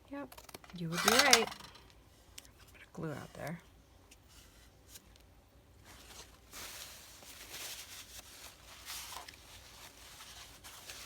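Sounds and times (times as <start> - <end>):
paper rubbing and rustling: 5.8 - 11.0.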